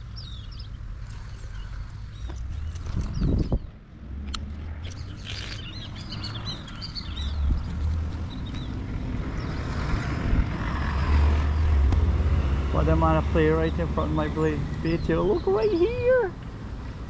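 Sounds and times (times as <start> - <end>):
birds chirping: 0.0 - 10.0, 12.8 - 16.3.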